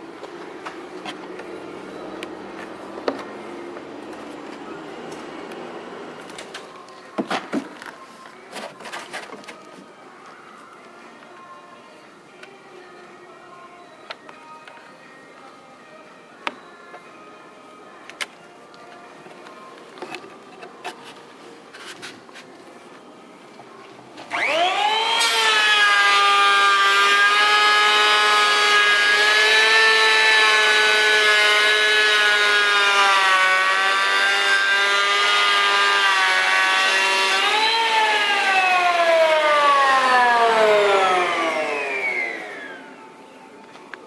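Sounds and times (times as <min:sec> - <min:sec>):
dust extractor motor whine: 0:24.3 - 0:43.0.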